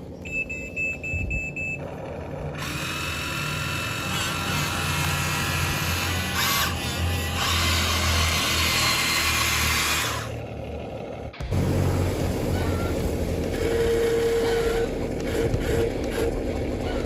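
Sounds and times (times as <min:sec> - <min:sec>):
small electric motor whirring: 0:02.6 - 0:10.5.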